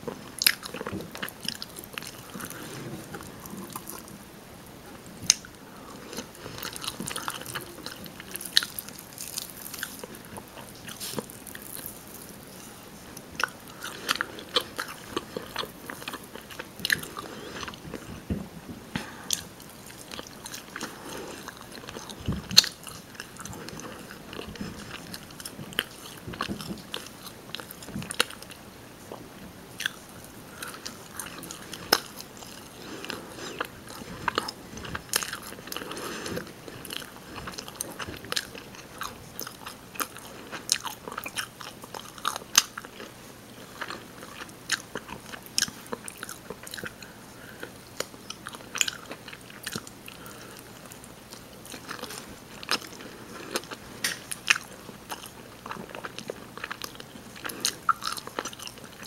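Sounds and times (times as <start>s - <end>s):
chewing and biting chicken: 5.3s - 18.2s, 29.8s - 59.0s.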